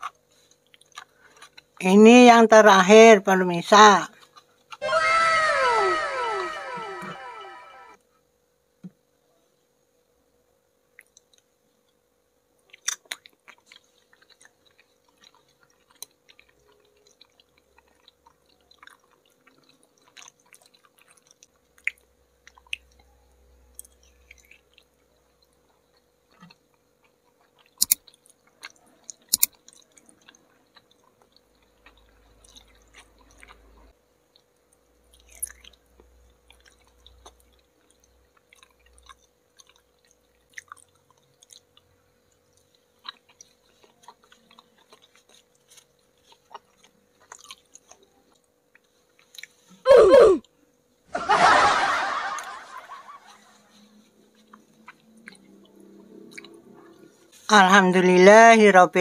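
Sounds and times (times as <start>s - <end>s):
person chewing: 0.0s - 1.7s, 12.7s - 23.1s, 23.8s - 49.8s, 53.2s - 57.5s.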